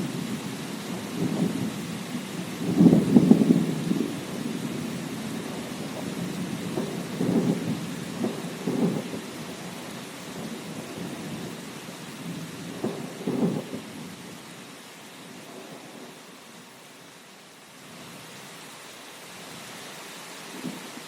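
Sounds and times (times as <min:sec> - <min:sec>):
rolling thunder: 0:00.0 - 0:11.6, 0:12.2 - 0:14.1
rain hiss: 0:00.0 - 0:21.0.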